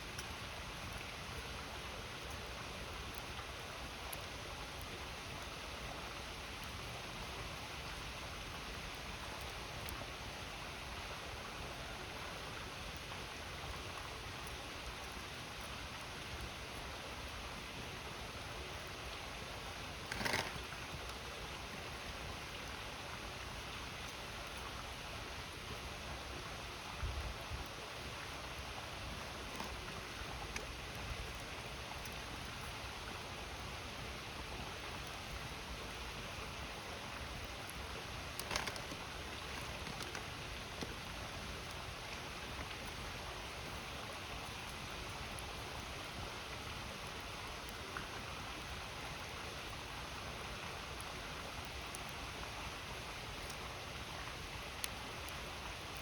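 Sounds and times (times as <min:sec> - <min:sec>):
campfire crackling: 0:00.1 - 0:56.0.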